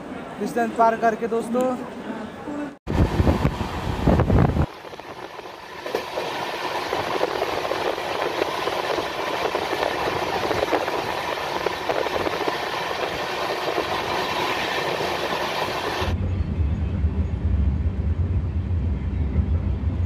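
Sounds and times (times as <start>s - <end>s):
train rushing along track: 2.9s - 20.0s
wheels rattling on rails: 3.0s - 16.2s.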